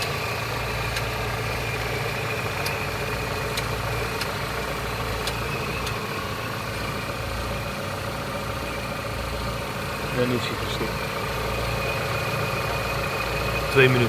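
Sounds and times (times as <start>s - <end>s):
car engine idling: 0.0s - 14.0s
faint irregular ticks: 0.9s - 1.2s, 3.5s - 4.4s, 5.2s - 6.0s.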